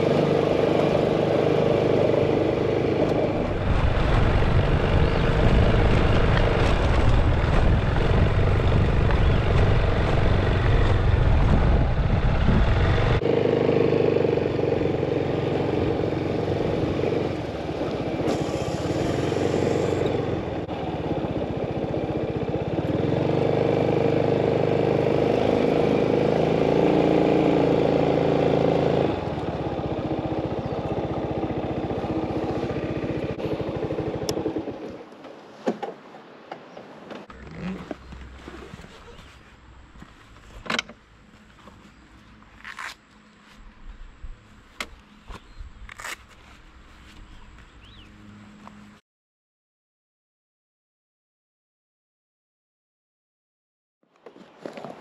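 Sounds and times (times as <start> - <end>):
motorcycle engine running: 0.0 - 35.0
wind rumble on microphone: 3.0 - 13.2.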